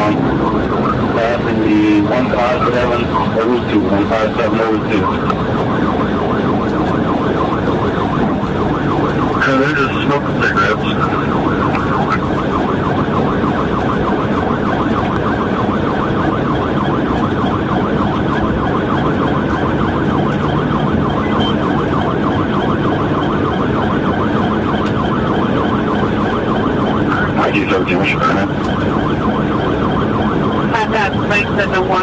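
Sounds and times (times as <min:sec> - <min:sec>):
car engine and road noise: 0:00.0 - 0:32.0
police siren yelp: 0:00.0 - 0:32.0.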